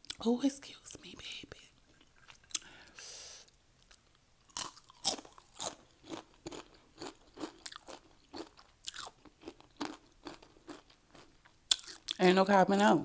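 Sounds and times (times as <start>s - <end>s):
chewing crunchy chips: 3.8s - 12.3s.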